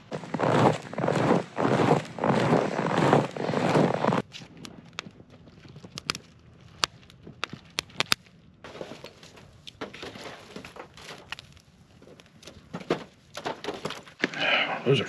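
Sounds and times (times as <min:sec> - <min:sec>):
footsteps crunching in snow: 0:00.0 - 0:04.2.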